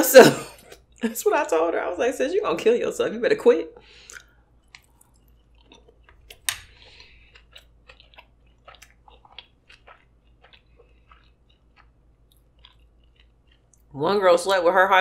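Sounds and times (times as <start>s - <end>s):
person chewing with wet clicks: 4.0s - 14.0s.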